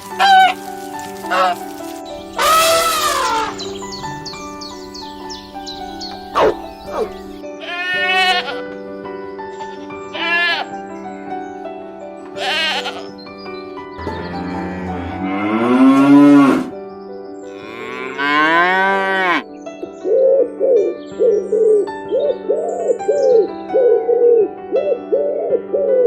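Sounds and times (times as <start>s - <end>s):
soft background music: 0.0s - 26.0s
sheep bleating: 7.6s - 8.6s, 10.1s - 10.7s, 12.4s - 13.1s
cattle mooing: 17.5s - 19.4s.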